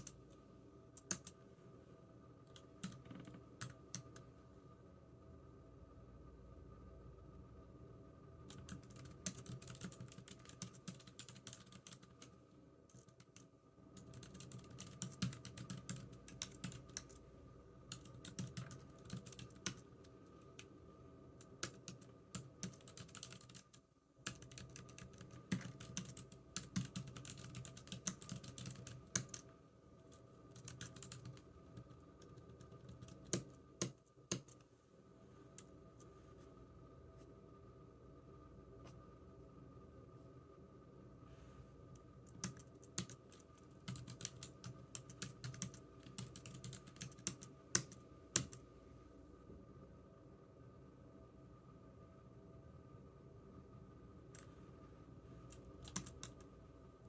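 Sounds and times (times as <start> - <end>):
computer keyboard typing: 0.0 - 0.4, 1.0 - 1.4, 2.5 - 4.3, 8.4 - 17.2, 17.9 - 20.7, 21.4 - 29.5, 30.5 - 34.6, 42.3 - 48.6, 55.5 - 56.5
faint steady hum: 0.0 - 57.0.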